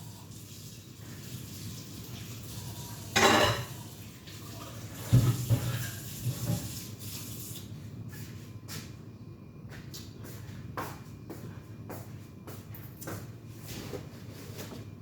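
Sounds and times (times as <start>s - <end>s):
dishes knocking and clinking: 3.2s - 3.8s.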